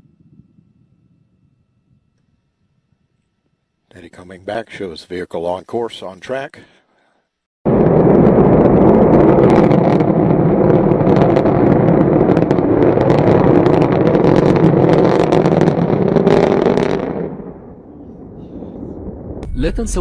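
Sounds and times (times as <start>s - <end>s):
rocket engine roar with crackling: 7.7s - 20.0s.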